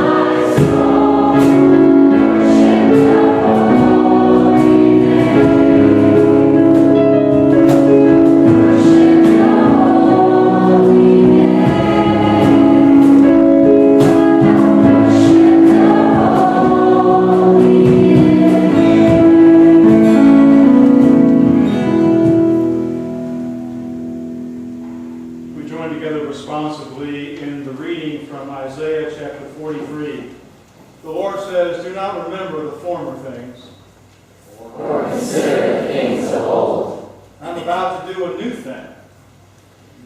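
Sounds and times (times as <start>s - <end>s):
choir singing with instruments: 0.0s - 23.4s, 34.4s - 37.3s.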